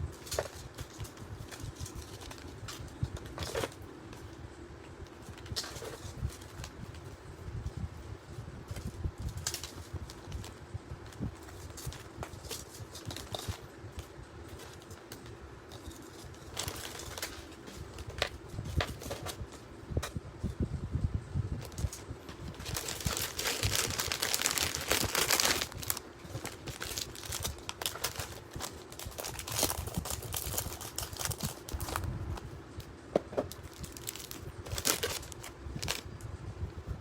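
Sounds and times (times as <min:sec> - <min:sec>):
packaging crinkling and rustling: 0:00.1 - 0:04.4, 0:08.7 - 0:19.5, 0:21.6 - 0:32.5, 0:33.5 - 0:36.0.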